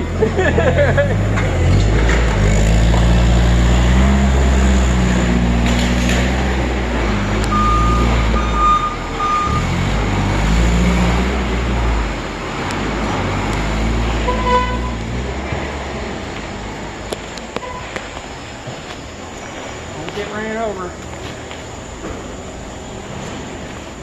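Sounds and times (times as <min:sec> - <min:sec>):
forklift engine running: 0:00.0 - 0:24.0
brief tone: 0:07.5 - 0:09.6, 0:17.6 - 0:18.0
reversing alarm beeps: 0:07.5 - 0:09.7.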